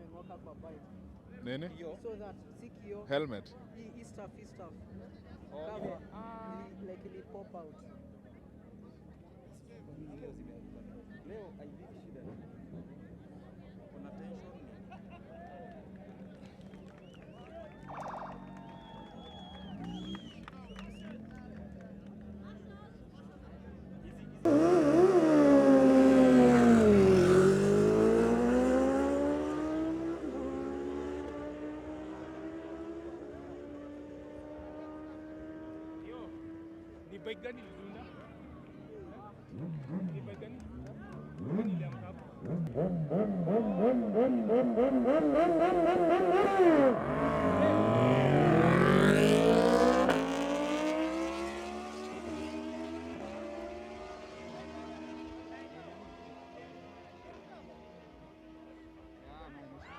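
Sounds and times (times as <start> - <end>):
motorcycle engine accelerating: 24.3 - 37.1, 39.4 - 59.3.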